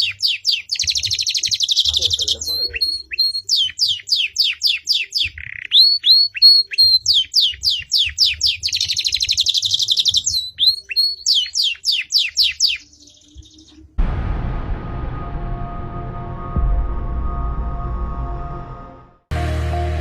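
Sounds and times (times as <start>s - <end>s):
rapid rolling bird trill: 0.0s - 13.7s
songbirds singing: 0.0s - 14.0s.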